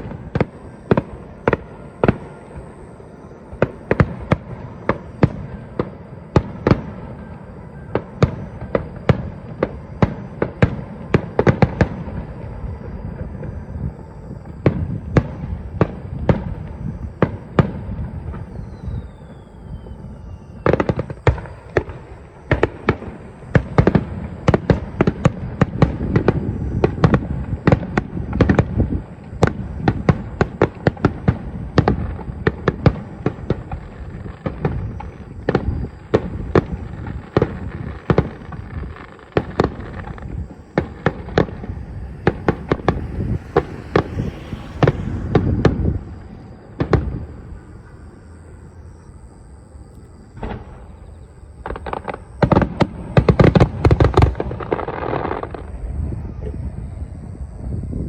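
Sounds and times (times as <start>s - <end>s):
falling firework whistle: 0.0s - 58.0s
fireworks bangs and crackles: 0.0s - 58.0s
continuous low rumble: 21.0s - 51.8s.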